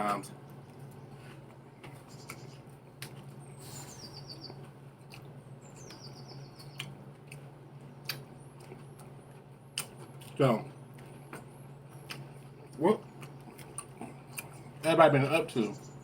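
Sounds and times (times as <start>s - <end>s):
steady low hum: 0.0s - 16.0s
small bird chirping: 1.9s - 2.7s, 3.3s - 7.0s, 15.5s - 16.0s.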